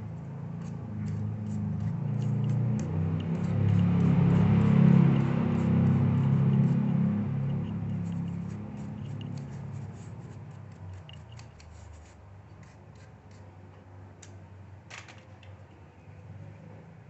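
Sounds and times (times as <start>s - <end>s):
hands handling laptop parts: 14.9s - 15.6s.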